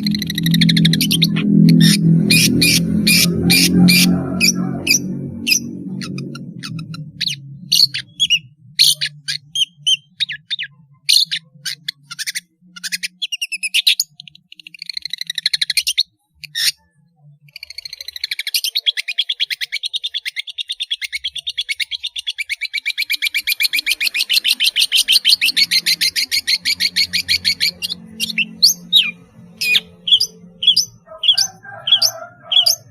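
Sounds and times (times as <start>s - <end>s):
shrike singing: 0.0s - 12.0s, 21.2s - 32.9s.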